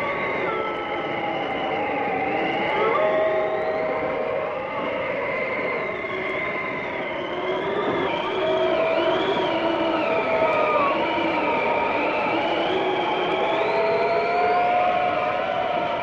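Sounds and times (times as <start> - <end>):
blizzard wind howling: 0.0 - 16.0
thin whistling tones: 4.8 - 16.0.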